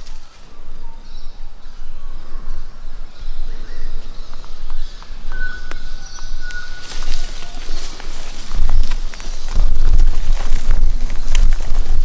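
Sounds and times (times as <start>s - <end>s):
birds chirping: 0.0s - 12.0s
thin whistled notes: 5.2s - 8.0s.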